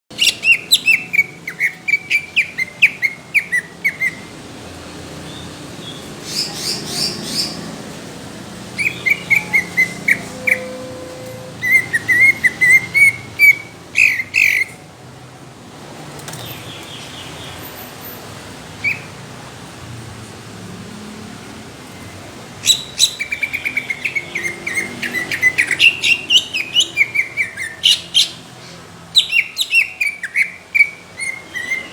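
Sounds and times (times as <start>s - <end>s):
bird singing whistled notes: 0.2s - 4.3s, 8.8s - 14.8s, 22.6s - 28.4s, 29.2s - 31.9s.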